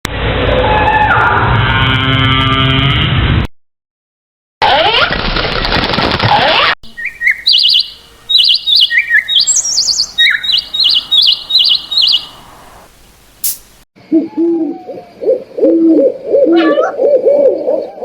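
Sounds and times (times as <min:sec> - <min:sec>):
bird chirping: 0:06.8 - 0:13.8.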